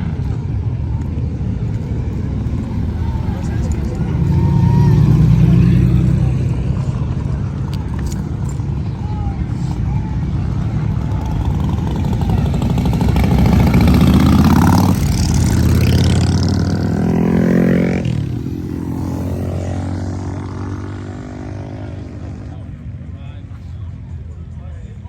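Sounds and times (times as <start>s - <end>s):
car engine revving past: 2.3s - 6.8s.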